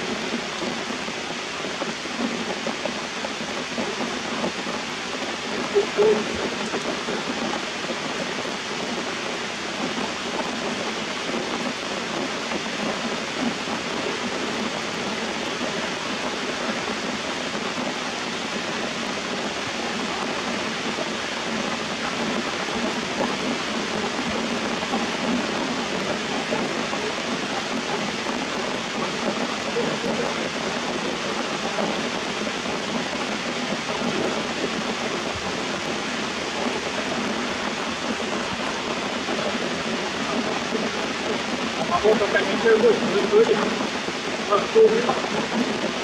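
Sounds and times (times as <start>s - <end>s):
rain falling on foliage and rocks: 0.0s - 46.0s.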